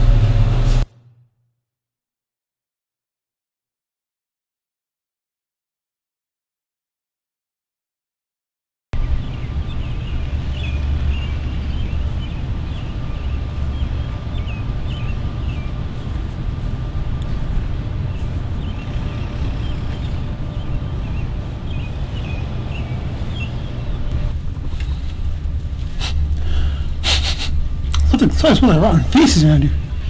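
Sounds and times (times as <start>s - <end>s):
wind buffeting microphone: 9.0s - 27.0s
small birds chirping: 9.0s - 30.0s.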